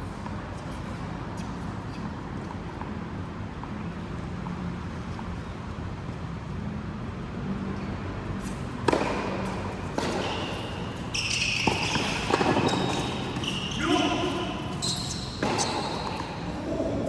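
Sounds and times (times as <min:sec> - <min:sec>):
high shoe squeaking: 0:08.4 - 0:17.0
racket hits: 0:08.8 - 0:16.6.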